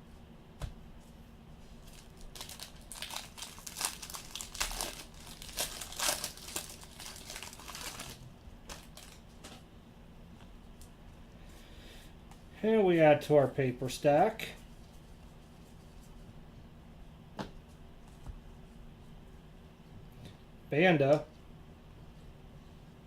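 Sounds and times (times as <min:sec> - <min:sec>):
cards crinkling and rustling: 0:01.8 - 0:09.6.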